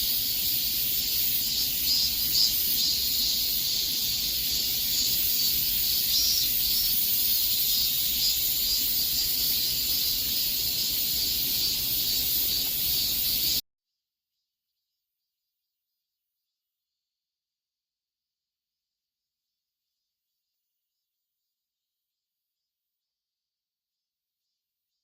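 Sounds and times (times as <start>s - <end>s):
cicadas buzzing: 0.0s - 13.6s.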